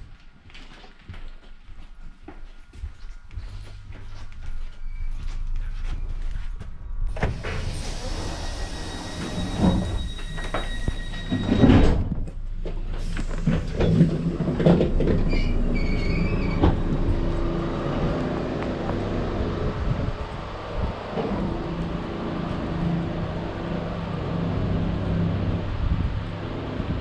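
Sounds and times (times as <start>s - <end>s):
train rumbling on rails: 0.0s - 27.0s
train clunks: 7.1s - 19.3s
high wheel squeal: 7.5s - 11.9s, 15.2s - 17.6s.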